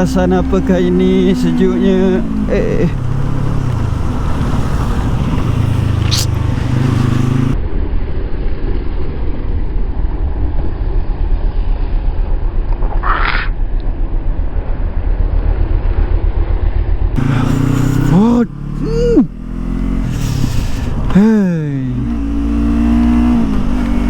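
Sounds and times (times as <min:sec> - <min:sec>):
motorcycle engine humming: 0:00.0 - 0:07.6, 0:17.2 - 0:24.0
wind buffeting: 0:00.0 - 0:07.6
road rumble: 0:00.0 - 0:07.7, 0:10.2 - 0:24.0.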